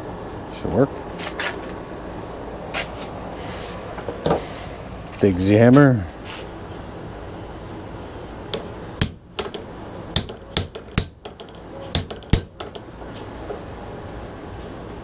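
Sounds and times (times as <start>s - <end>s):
hammer striking metal punch: 8.6s - 9.6s, 10.2s - 12.8s.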